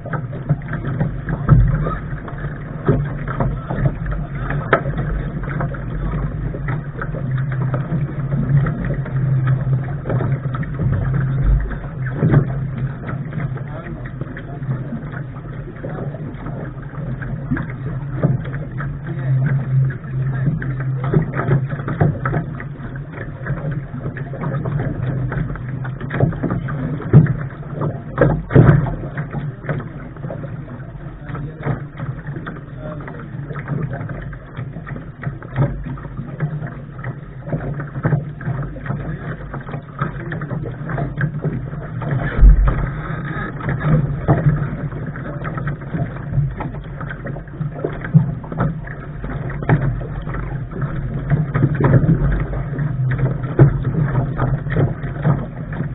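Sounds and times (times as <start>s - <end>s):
low rumble: 0.0s - 55.9s
water slapping against a hull: 0.0s - 55.9s
knocks and thumps: 42.2s - 44.6s.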